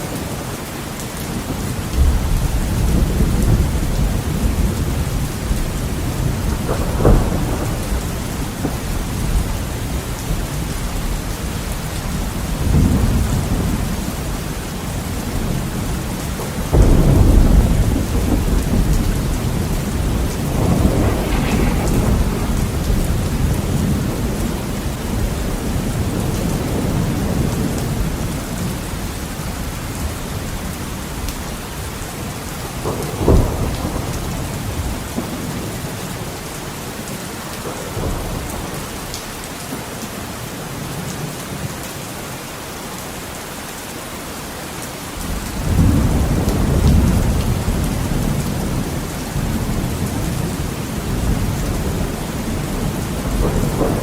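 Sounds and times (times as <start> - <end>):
thunder rumbling: 0.0 - 39.5, 45.2 - 54.0
heavy rain on a window: 0.0 - 54.0
sharp thunder crack: 6.2 - 8.8, 16.7 - 27.7.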